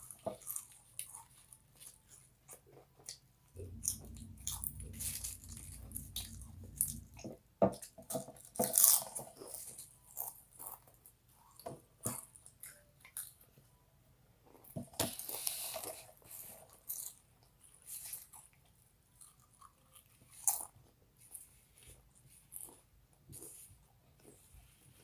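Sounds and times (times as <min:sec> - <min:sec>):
low rumble: 0:03.6 - 0:07.5.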